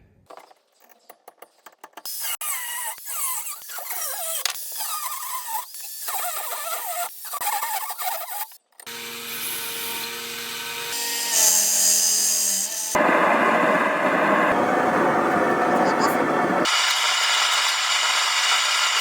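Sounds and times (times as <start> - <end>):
power tool motor whine: 8.9 - 19.0
metal squeal from power tool: 10.9 - 13.0.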